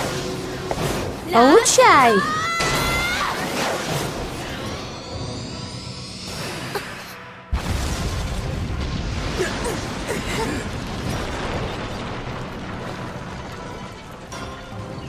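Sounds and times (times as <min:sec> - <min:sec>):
background music: 0:00.0 - 0:10.7, 0:12.6 - 0:15.0
cartoon explosion with rumble: 0:07.5 - 0:14.3.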